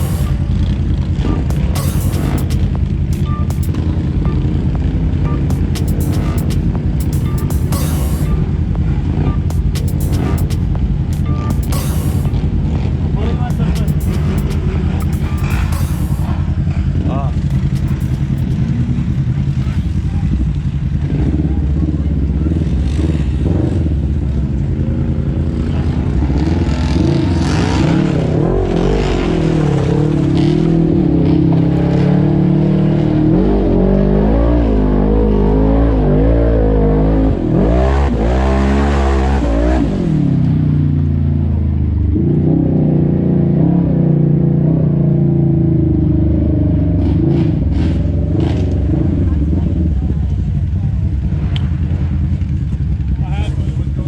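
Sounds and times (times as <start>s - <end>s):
off-road vehicle engine revving: 18.6s - 53.8s.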